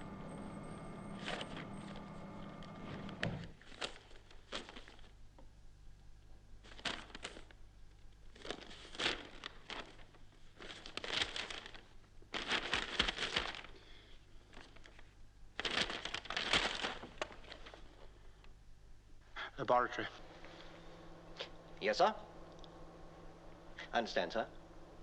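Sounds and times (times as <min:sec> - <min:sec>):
paper rustling and crinkling: 0:01.1 - 0:05.2, 0:06.6 - 0:18.2.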